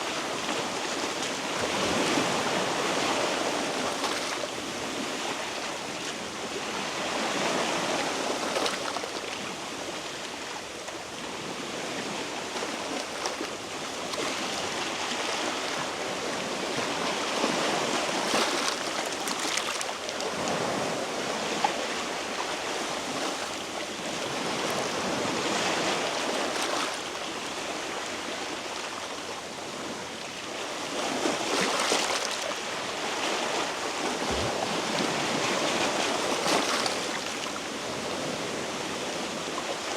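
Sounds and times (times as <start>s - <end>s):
waves washing against rocks: 30.9s - 39.9s.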